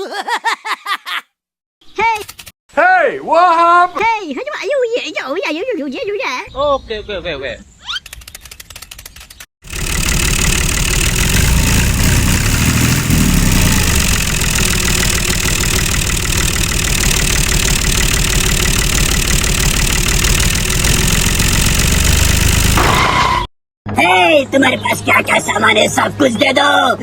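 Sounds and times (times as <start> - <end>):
tractor engine idling: 9.6 - 22.9.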